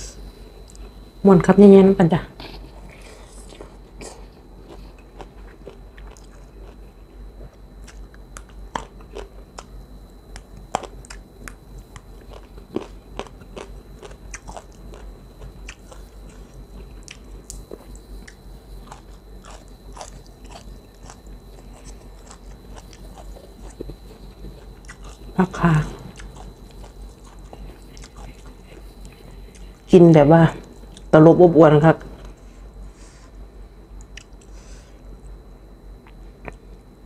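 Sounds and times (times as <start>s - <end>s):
low electrical hum: 0.0s - 37.0s
food crunching: 2.4s - 9.7s, 10.3s - 30.0s
person chewing food: 2.4s - 9.7s, 10.3s - 29.9s, 34.0s - 35.4s, 36.0s - 36.8s.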